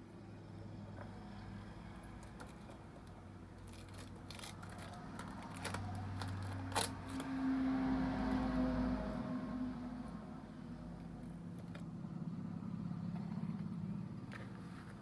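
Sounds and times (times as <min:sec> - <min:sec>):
low hum: 0:03.0 - 0:15.0.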